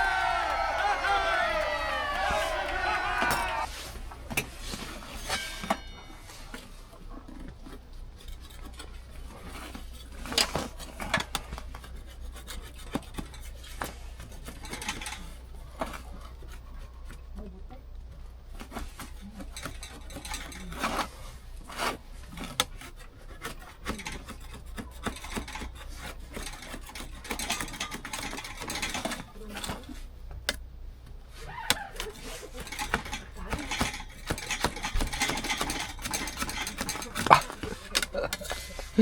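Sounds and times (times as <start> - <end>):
scraping and rubbing handling: 0.0 - 17.4, 18.0 - 39.0
scattered clicks and light knocks: 23.8 - 38.6.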